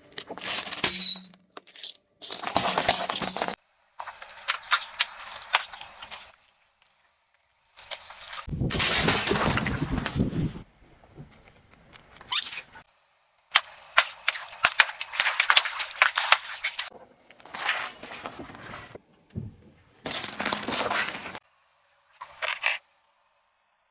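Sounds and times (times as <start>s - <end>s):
brittle cracks and pops: 13.5s - 17.6s, 20.0s - 21.4s
car tyre crushing objects: 13.5s - 21.4s.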